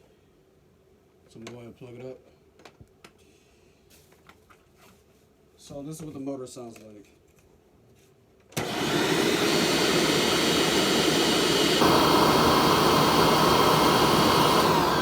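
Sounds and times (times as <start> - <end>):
high motor whine: 8.6 - 15.0
vacuum cleaner motor running: 8.6 - 15.0.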